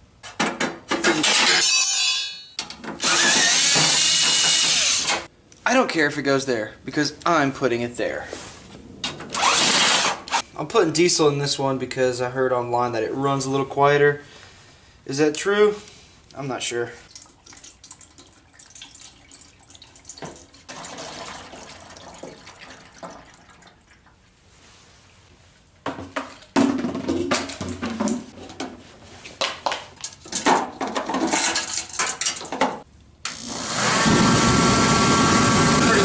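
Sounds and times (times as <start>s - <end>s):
knocks and clatter of handling: 0.2s - 1.4s, 25.8s - 32.9s
fuel pouring into tank: 17.1s - 24.1s.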